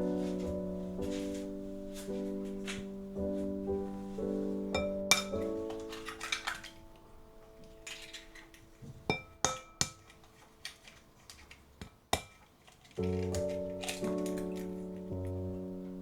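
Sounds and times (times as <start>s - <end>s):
soft piano music: 0.0s - 12.3s, 12.9s - 16.0s
utensils clinking on dishes: 4.8s - 14.8s.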